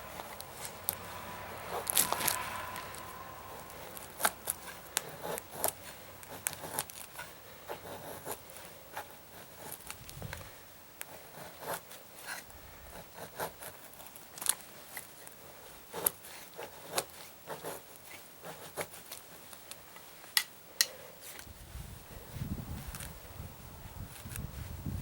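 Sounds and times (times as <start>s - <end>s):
sticks scraping: 0.0s - 7.4s, 11.8s - 12.5s.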